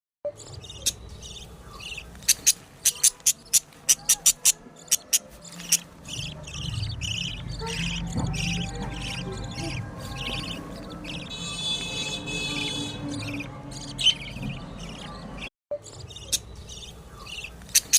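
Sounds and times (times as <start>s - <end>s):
chicks chirping: 0.3s - 17.9s
low hum: 6.0s - 15.5s.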